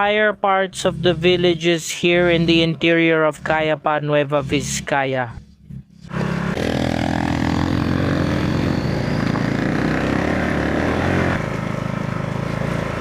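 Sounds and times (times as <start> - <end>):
motorcycle engine running: 0.8 - 13.0.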